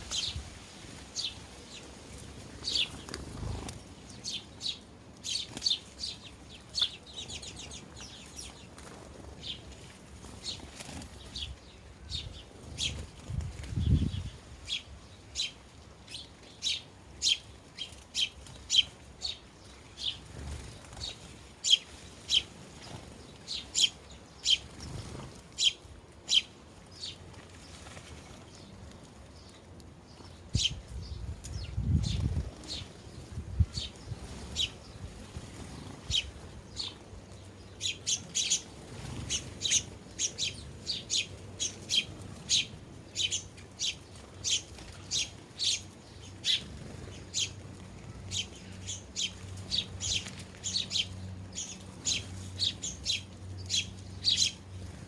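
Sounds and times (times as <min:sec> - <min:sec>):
sparrows chirping: 0:00.0 - 0:55.0.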